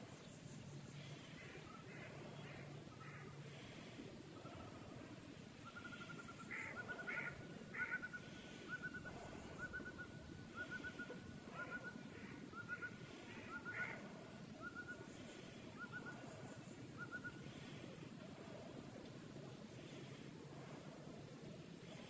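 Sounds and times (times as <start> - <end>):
birds chirping: 0.0 - 18.8
harsh bird calls: 5.6 - 17.8.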